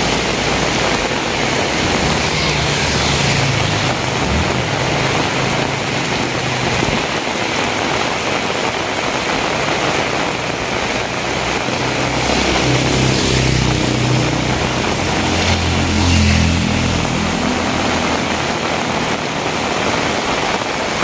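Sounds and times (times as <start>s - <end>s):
heavy rain hissing: 0.0s - 21.0s
vehicle engine hum: 0.0s - 21.0s.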